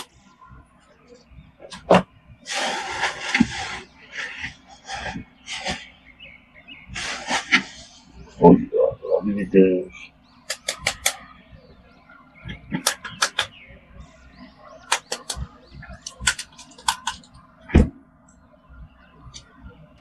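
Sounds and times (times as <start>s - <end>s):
sharp clicks: 10.4s - 11.3s, 12.5s - 13.6s, 14.9s - 17.4s.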